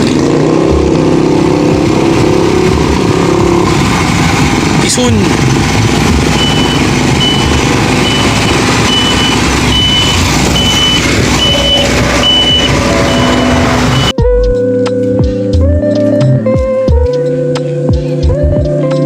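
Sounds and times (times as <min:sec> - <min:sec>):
motorcycle engine: 0:00.0 - 0:14.2
wind: 0:00.0 - 0:14.2
short high electronic beep: 0:06.4 - 0:14.2.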